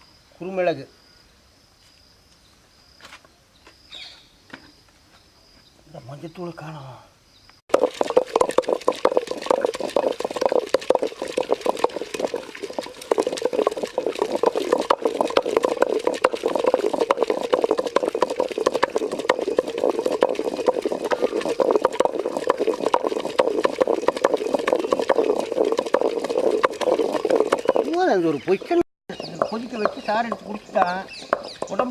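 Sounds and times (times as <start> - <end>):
curry bubbling in a pot: 7.7 - 31.9.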